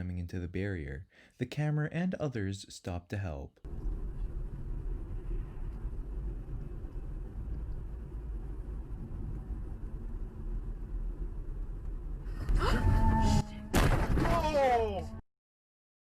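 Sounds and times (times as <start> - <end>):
car driving rumble: 3.7 - 13.4.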